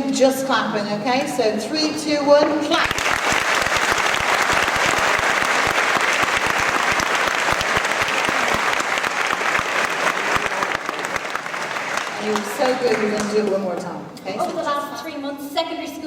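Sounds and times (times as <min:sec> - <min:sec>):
audience clapping: 0:02.7 - 0:14.0.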